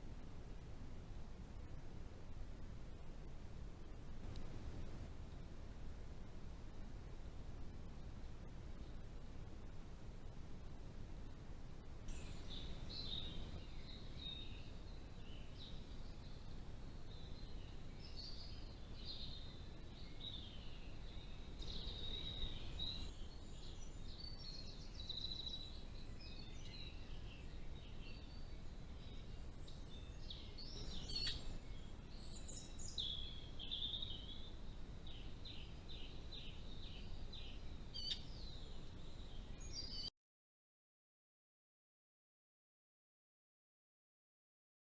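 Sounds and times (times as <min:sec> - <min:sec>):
low background hiss: 0:00.0 - 0:40.1
birds chirping and whistling: 0:29.0 - 0:34.5, 0:35.1 - 0:40.1.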